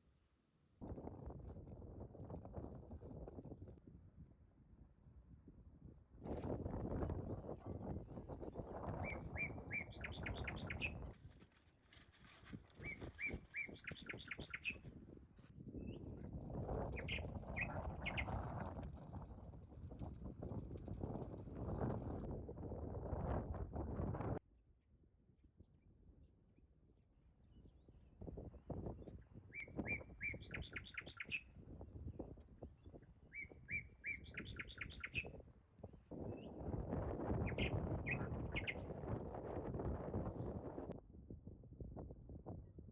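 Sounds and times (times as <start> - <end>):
rustling crackling noise: 6.2 - 22.3
songbird singing: 8.4 - 11.2, 12.8 - 14.9, 15.7 - 22.2, 27.4 - 35.5, 36.1 - 39.1.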